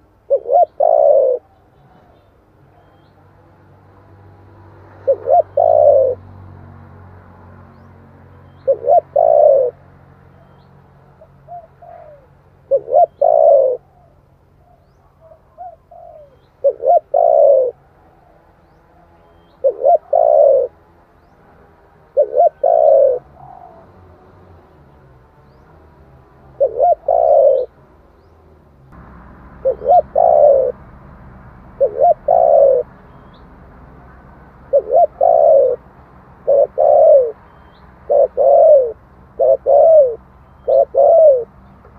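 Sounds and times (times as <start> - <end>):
dove cooing: 0.0 - 3.1, 4.9 - 6.3, 8.4 - 9.8, 10.4 - 20.8, 22.0 - 25.7, 26.4 - 27.8, 29.5 - 31.0, 31.7 - 33.4, 34.5 - 41.6.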